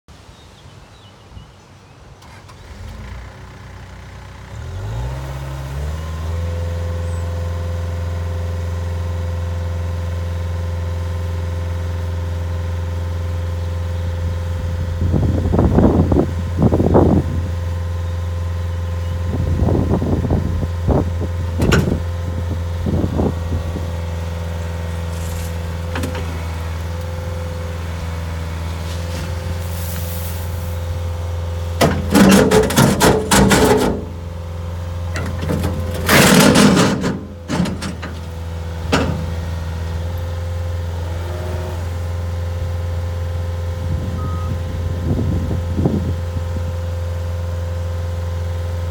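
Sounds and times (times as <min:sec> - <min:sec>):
diesel engine starting and running: 0:02.1 - 0:48.9
short louder engine bursts: 0:40.8 - 0:43.0, 0:43.8 - 0:46.0.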